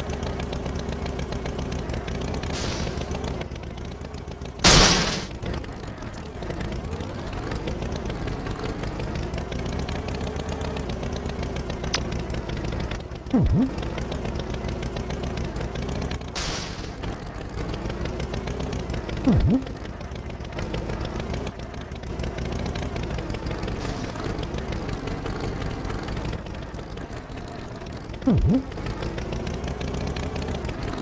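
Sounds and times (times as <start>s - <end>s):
cartoon engine drone: 4.6s - 5.4s, 13.3s - 14.2s, 16.4s - 17.1s, 19.2s - 20.0s, 28.2s - 29.3s
effect dropping steeply in pitch: 13.4s - 13.8s, 19.2s - 19.7s, 28.3s - 28.7s.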